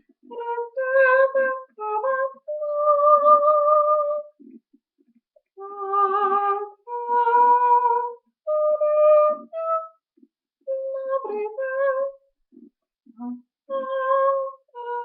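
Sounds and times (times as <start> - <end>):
woman singing wordless melody: 0.2 - 4.4, 5.6 - 10.0, 10.6 - 15.0.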